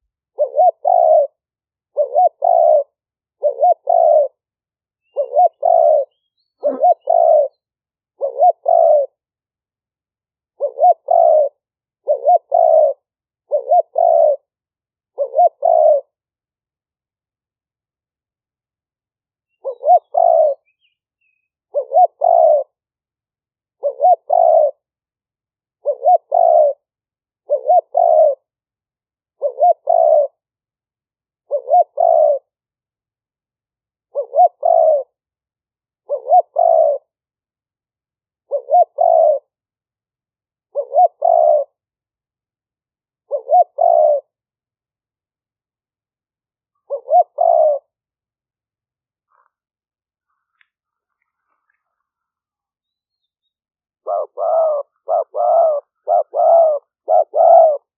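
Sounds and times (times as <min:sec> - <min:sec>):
dove cooing: 0:00.3 - 0:04.4, 0:05.0 - 0:07.6, 0:08.2 - 0:09.2, 0:10.5 - 0:14.5, 0:15.1 - 0:16.2, 0:19.6 - 0:22.8, 0:23.8 - 0:24.8, 0:25.8 - 0:26.9, 0:27.5 - 0:28.5, 0:29.4 - 0:30.4, 0:31.4 - 0:32.5, 0:34.1 - 0:35.2, 0:36.0 - 0:37.2, 0:38.4 - 0:39.6, 0:40.7 - 0:41.8, 0:43.2 - 0:44.4, 0:46.7 - 0:48.0, 0:49.3 - 0:49.6, 0:54.0 - 0:57.9.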